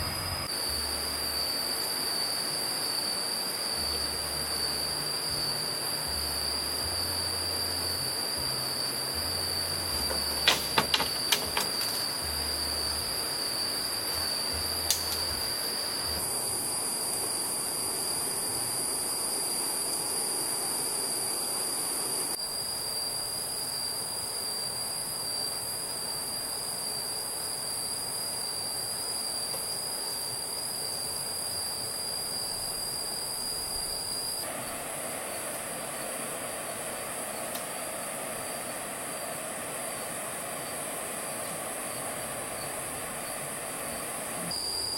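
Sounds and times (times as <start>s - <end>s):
insects droning: 0.0s - 44.9s
sharp click: 14.8s - 15.3s.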